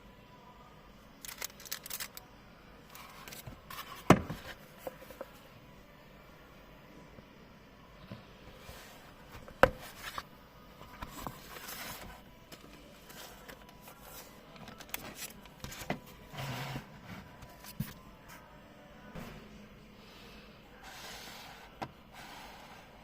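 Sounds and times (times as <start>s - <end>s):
packaging rustling and scraping: 11.0s - 18.0s.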